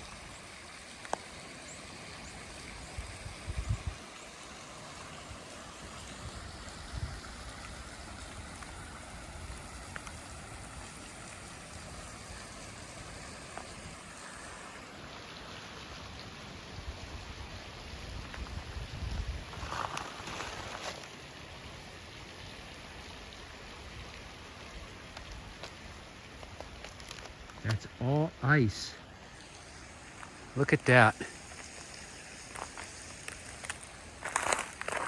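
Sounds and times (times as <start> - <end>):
rushing outdoor noise: 0.0 - 35.0.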